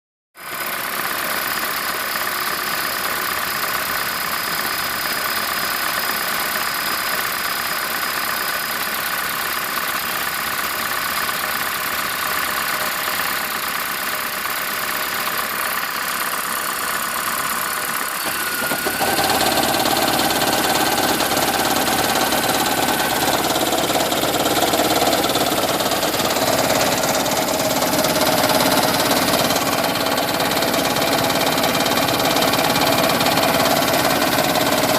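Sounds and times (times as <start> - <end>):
car engine idling: 0.5 - 34.9
low engine knocking: 0.6 - 34.9.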